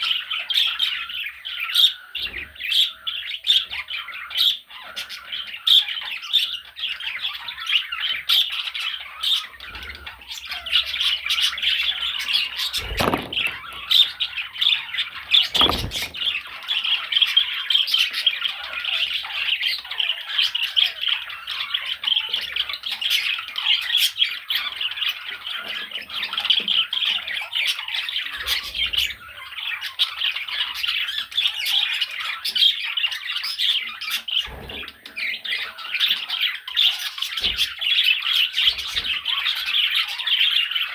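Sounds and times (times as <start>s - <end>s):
low thumps: 12.9s - 14.0s, 15.5s - 16.4s.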